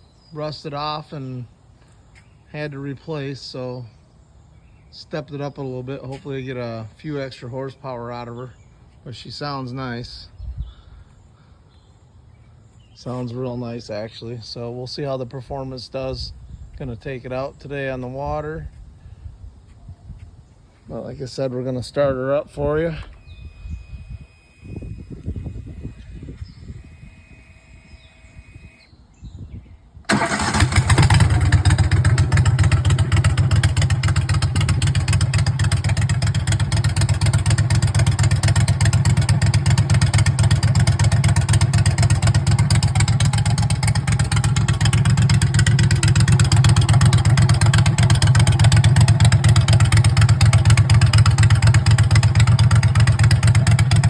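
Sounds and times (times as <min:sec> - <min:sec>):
mud motor running: 0:30.1 - 0:54.0.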